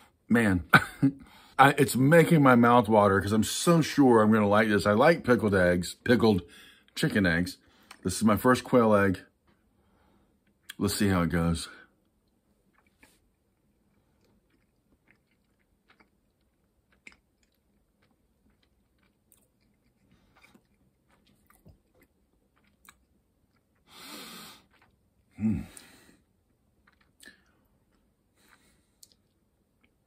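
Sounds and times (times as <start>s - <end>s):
man chewing: 12.1s - 30.0s.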